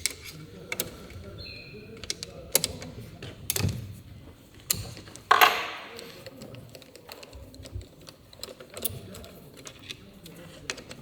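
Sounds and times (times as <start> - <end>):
small metal clicks and taps: 0.0 - 1.3, 4.6 - 11.0
metal part clattering: 5.3 - 6.3.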